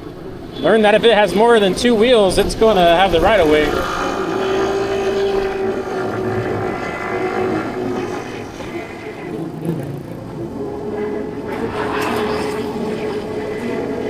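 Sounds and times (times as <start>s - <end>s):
road and wind noise: 0.0s - 14.0s
scooter engine running: 2.5s - 13.9s.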